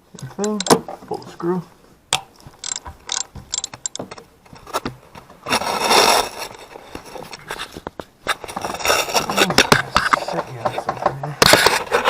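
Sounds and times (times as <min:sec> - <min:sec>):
ratchet wrench clicking: 0:02.6 - 0:04.0.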